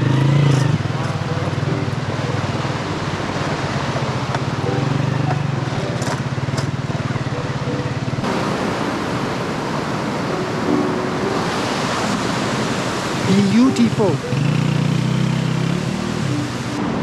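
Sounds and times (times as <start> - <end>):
motorcycle engine idling: 0.0 - 8.3
steady rushing noise: 0.0 - 17.0.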